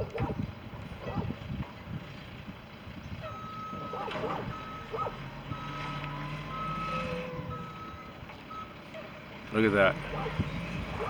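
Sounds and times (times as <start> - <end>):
truck rumble: 0.0 - 11.0
reversing alarm beeping: 3.3 - 8.8.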